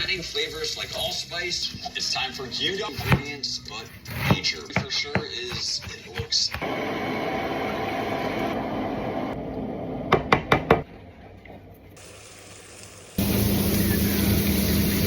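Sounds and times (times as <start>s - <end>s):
food sizzling in a pan: 12.0s - 15.0s.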